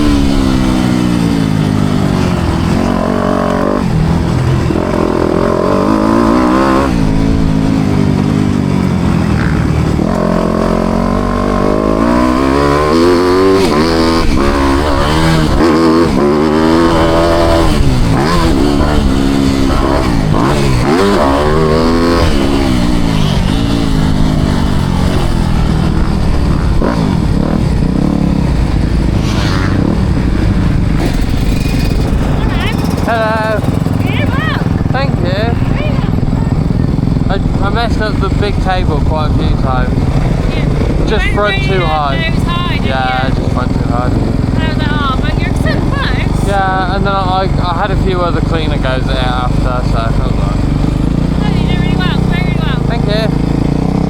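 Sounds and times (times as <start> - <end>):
motorbike engine revving: 0.0 - 54.0
wind rush: 13.8 - 46.4.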